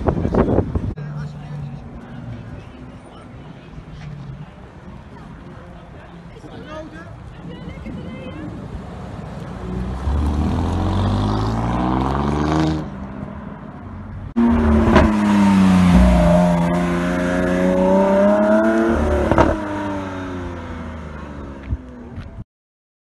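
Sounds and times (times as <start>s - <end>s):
sports car engine revving: 9.6s - 13.0s, 14.4s - 21.5s
car accelerating past: 9.6s - 13.1s, 14.4s - 21.6s.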